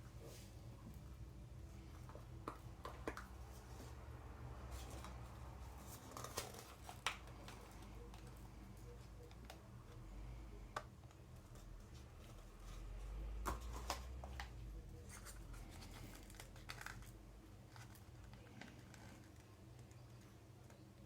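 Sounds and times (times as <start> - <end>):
low steady hum: 0.0 - 21.0
crinkling: 4.6 - 21.0.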